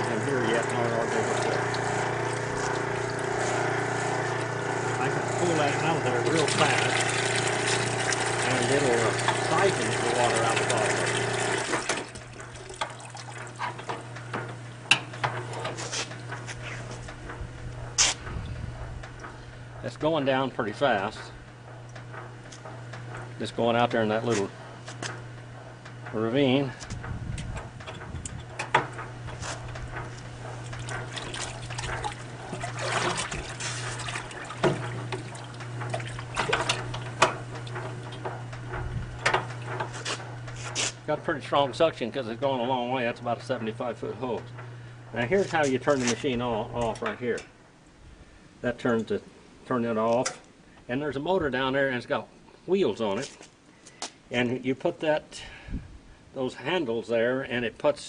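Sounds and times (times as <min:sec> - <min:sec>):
electric motor humming: 0:00.0 - 0:19.8
steady low hum: 0:00.0 - 0:58.0
water trickling and gurgling: 0:06.4 - 0:13.8
water trickling and dripping: 0:12.2 - 0:13.6.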